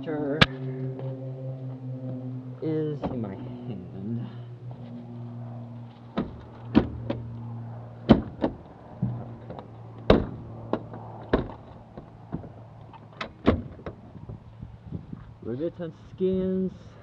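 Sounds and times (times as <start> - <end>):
steady low hum: 0.0 - 17.0
sharp knocks and clunks: 6.1 - 7.2, 8.0 - 14.4.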